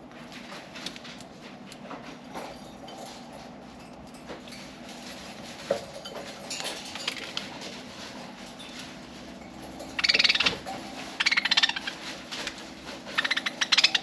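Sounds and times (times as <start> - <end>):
birds pecking seeds: 0.0 - 14.0
budgie twittering: 10.0 - 10.6, 11.2 - 12.0, 13.2 - 14.0.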